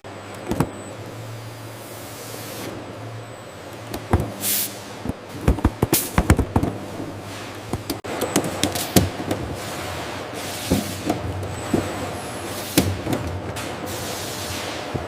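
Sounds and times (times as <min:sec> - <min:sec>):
air hiss: 0:04.4 - 0:04.8.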